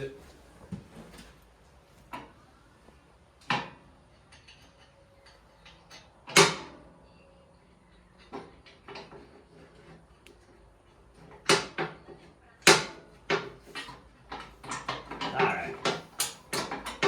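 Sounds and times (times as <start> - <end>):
hard knocks of metal parts: 12.7 - 17.0.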